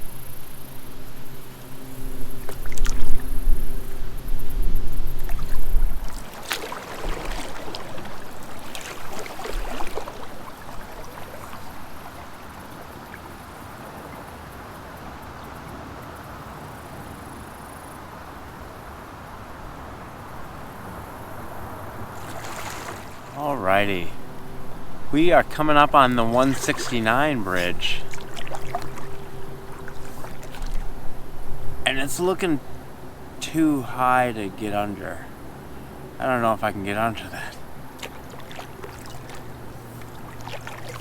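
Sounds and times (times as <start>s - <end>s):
flowing water rushing: 1.1s - 15.8s, 20.0s - 41.0s
kayak paddle strokes splashing: 1.2s - 15.5s, 20.6s - 32.8s, 36.8s - 41.0s.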